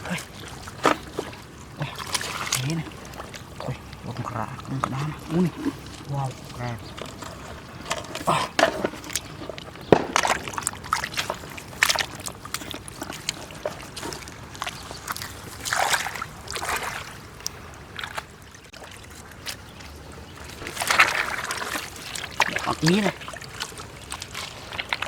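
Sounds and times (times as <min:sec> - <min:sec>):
shallow water splashing: 0:00.0 - 0:25.0
sharp knocks: 0:09.9 - 0:10.7.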